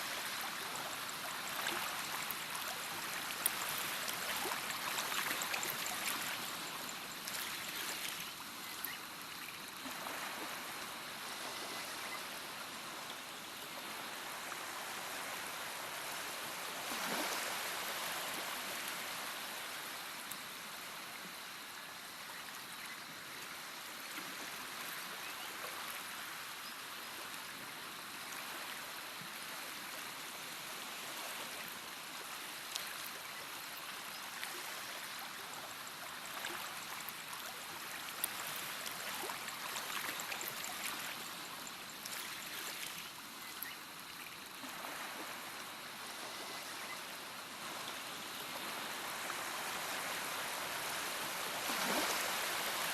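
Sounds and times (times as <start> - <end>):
stream water rushing: 0.0 - 11.3, 44.7 - 52.9.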